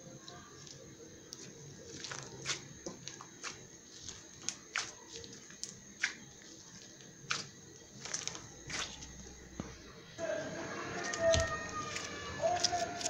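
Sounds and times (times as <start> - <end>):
slime crackling and popping: 0.2 - 9.1.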